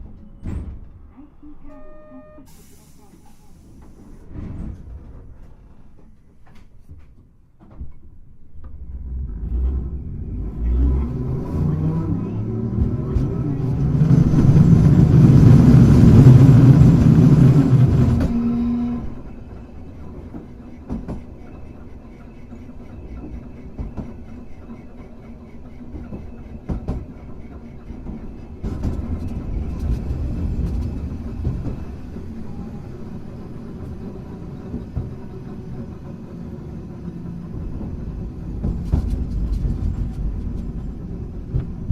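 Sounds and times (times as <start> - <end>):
tram rumbling: 0.0 - 41.9
wheels clicking over rail joints: 16.2 - 41.9.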